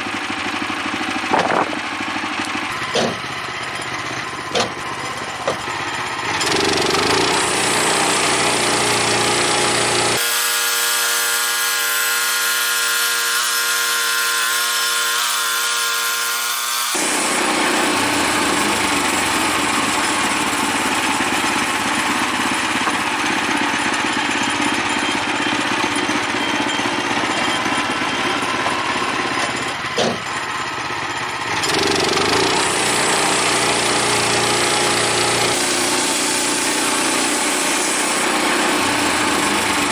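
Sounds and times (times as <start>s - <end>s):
bandsaw mill cutting timber: 0.0s - 39.9s.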